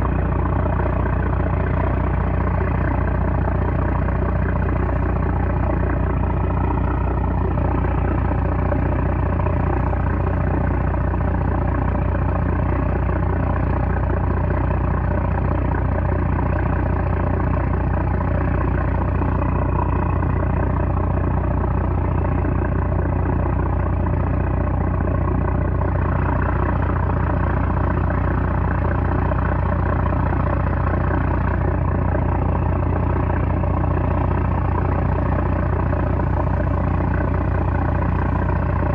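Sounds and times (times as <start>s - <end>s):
diesel engine droning: 0.0s - 38.9s.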